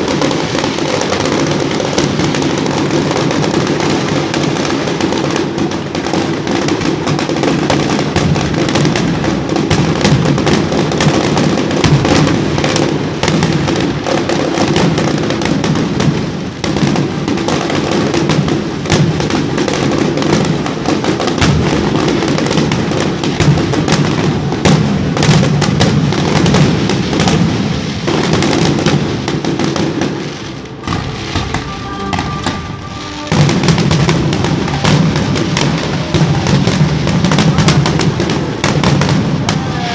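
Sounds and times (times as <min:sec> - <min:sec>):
fireworks bangs and crackles: 0:00.0 - 0:39.9
music playing: 0:30.6 - 0:36.0.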